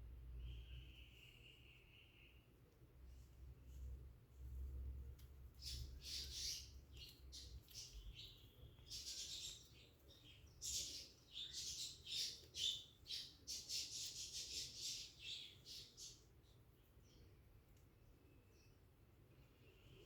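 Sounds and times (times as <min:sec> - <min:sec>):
cockatiels chirping and squawking: 0:05.6 - 0:09.8.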